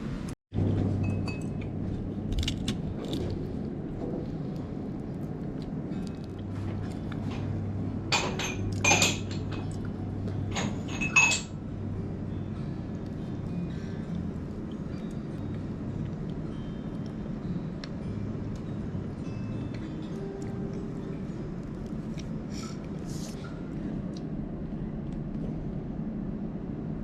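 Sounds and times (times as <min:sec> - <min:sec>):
steady low hum: 0:00.0 - 0:27.0
tableware clinking: 0:08.1 - 0:09.7, 0:10.5 - 0:11.6.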